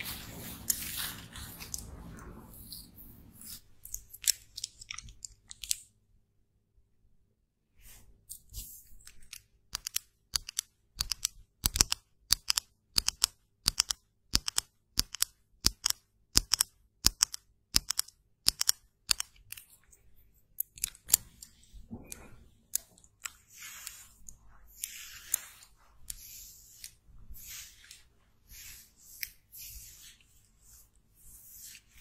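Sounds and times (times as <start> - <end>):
soft hissing and rustling: 0.0 - 3.8, 21.3 - 32.0.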